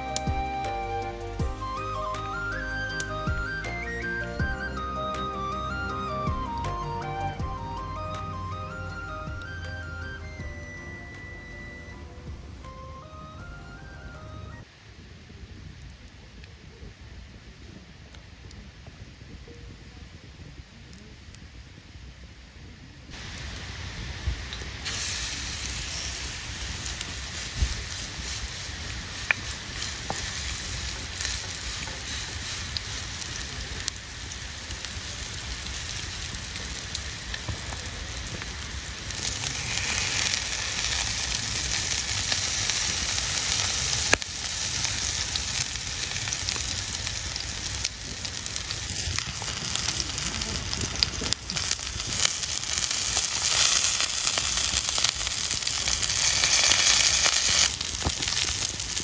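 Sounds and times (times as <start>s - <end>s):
food sizzling in frying pan: 23.1s - 59.0s.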